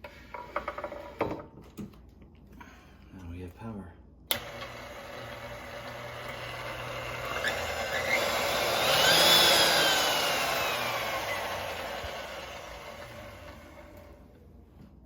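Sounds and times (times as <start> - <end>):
stand mixer motor whining: 4.3 - 14.2.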